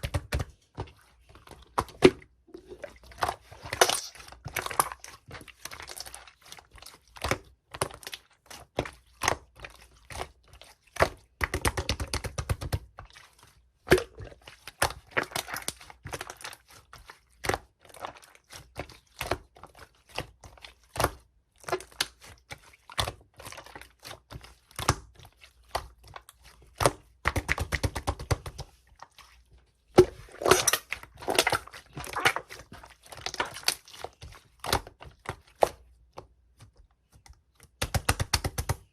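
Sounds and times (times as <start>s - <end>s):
slime squished by hand: 0.0s - 38.9s
slime crackling: 2.6s - 8.2s.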